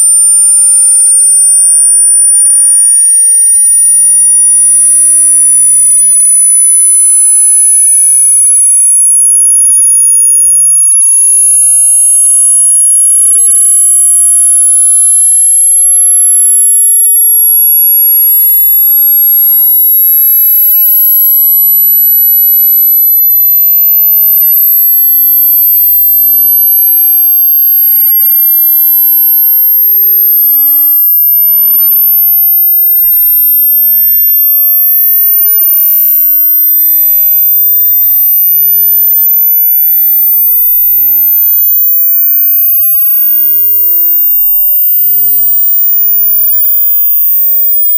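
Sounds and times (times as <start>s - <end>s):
high-pitched sine test tone rising: 0.0s - 47.9s.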